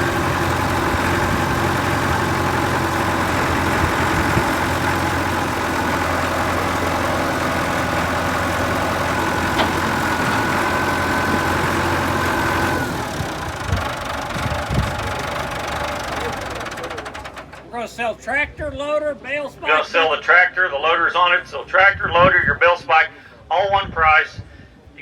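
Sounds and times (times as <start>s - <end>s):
tractor diesel engine idling: 0.0s - 18.5s.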